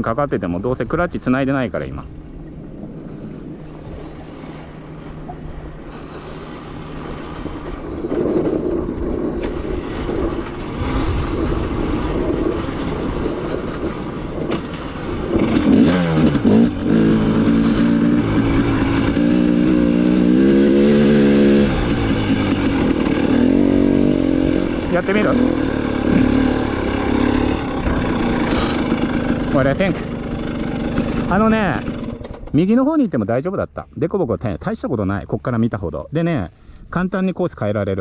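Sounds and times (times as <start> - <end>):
dirt bike engine revving: 2.1 - 32.6.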